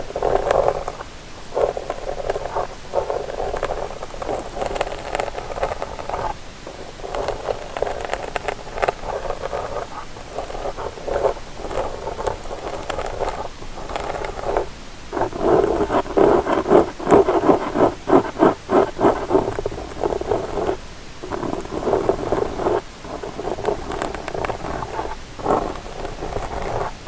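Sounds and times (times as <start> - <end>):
ear pick scratching microphone: 0.0 - 27.0.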